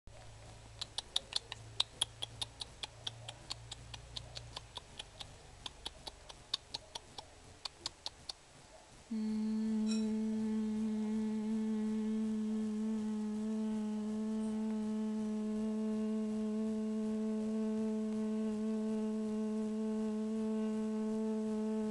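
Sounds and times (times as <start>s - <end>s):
steady low hum: 0.1s - 21.9s
sharp quick clicks: 0.8s - 8.4s.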